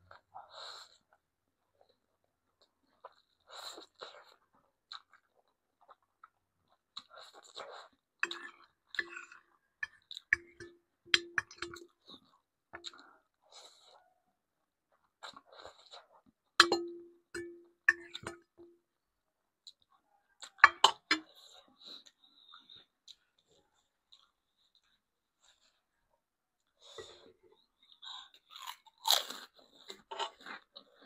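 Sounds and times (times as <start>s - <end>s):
chewing: 1.8s - 14.2s, 14.9s - 16.6s, 19.6s - 25.9s, 26.6s - 31.0s
utensil clinking against a dish: 8.2s - 12.0s, 16.6s - 18.8s, 20.6s - 21.3s.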